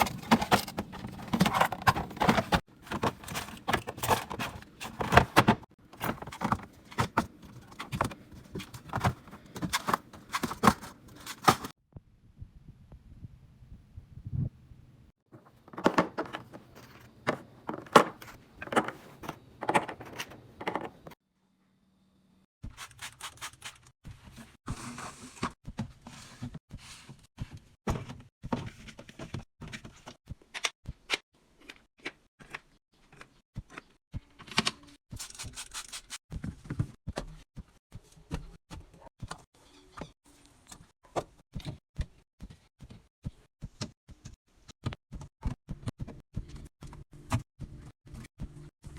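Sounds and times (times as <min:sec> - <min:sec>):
containers clicking and knocking: 0:00.0 - 0:11.7.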